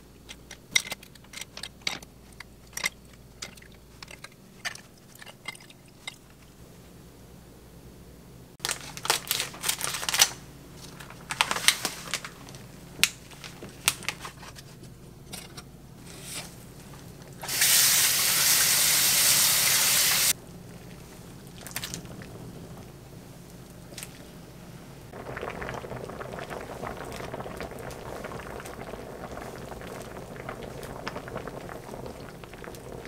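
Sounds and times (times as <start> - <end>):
kitchen clatter and clicks: 0.2 - 6.4.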